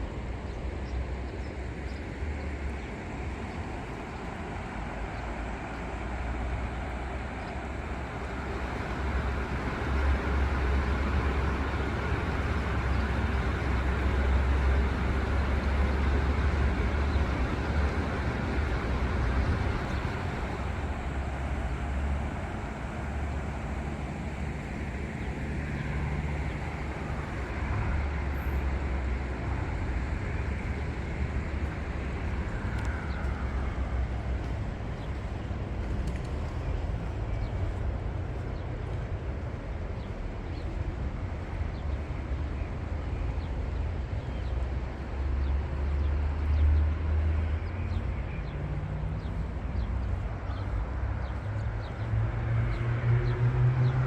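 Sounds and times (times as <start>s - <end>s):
traffic rumble: 0.0s - 54.0s
vehicle engine speeding up: 47.9s - 54.0s.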